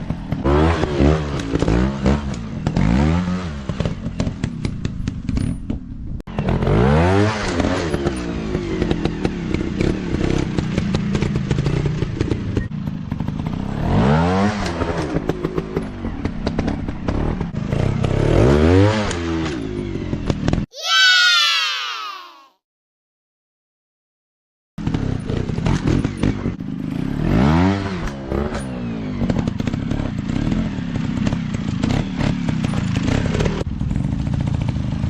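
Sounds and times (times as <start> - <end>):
dirt bike engine revving: 0.3 - 4.3, 6.3 - 15.8, 16.5 - 19.6, 24.8 - 33.6.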